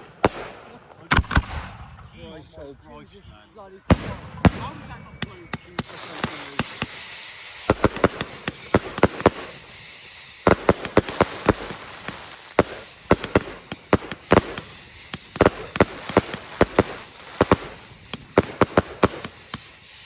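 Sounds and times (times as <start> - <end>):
fireworks cracks and bangs: 0.0 - 2.4, 3.9 - 20.0
high falling whistle: 4.6 - 20.0
hiss: 5.6 - 20.0.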